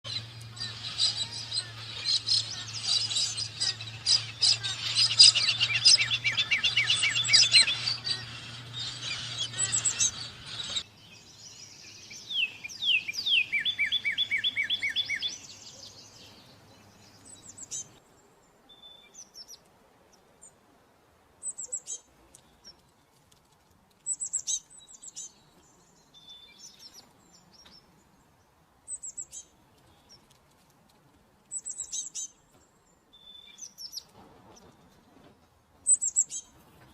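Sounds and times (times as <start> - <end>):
songbirds singing: 0.0 - 20.6, 21.4 - 30.5, 31.4 - 36.9
bird trilling: 0.1 - 10.8
steady low hum: 0.1 - 10.8.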